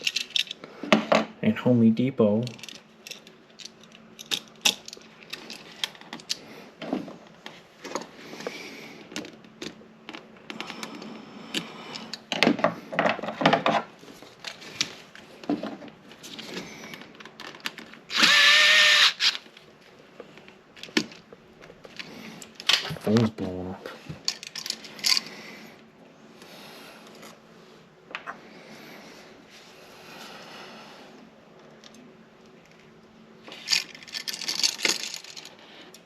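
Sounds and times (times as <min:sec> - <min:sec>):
tools clicking and scraping: 0:00.0 - 0:01.1, 0:02.4 - 0:06.4, 0:24.2 - 0:25.3, 0:33.4 - 0:36.0
power tool running: 0:18.1 - 0:19.4.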